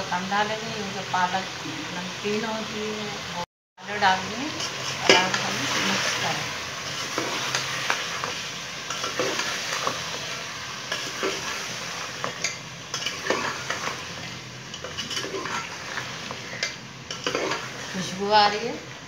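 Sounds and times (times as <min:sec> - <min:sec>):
food sizzling in oil: 0:00.0 - 0:19.0
spoon scraping a metal pot: 0:14.7 - 0:17.7.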